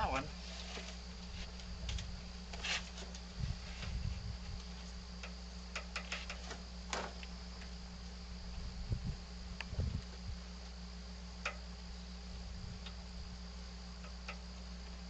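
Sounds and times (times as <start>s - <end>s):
steady low hum: 0.0s - 15.0s
clicks and taps on metal: 5.2s - 6.4s, 11.4s - 11.6s.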